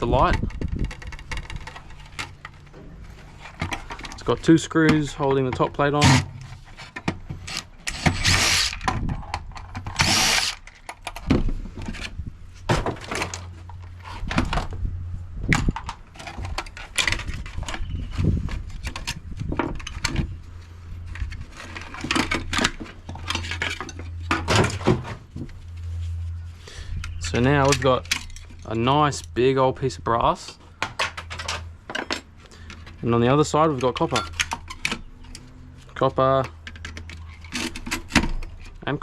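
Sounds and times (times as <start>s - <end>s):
plastic and metal parts rattling: 0.0s - 14.8s, 15.5s - 25.5s, 27.0s - 29.4s, 30.8s - 39.0s
steady low hum: 0.0s - 38.8s
power drill running: 7.5s - 8.8s, 10.0s - 10.6s.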